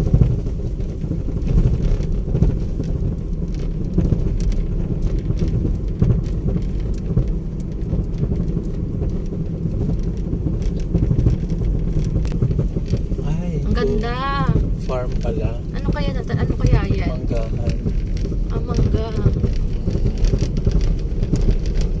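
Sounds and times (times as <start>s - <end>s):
car driving rumble: 0.0s - 22.0s.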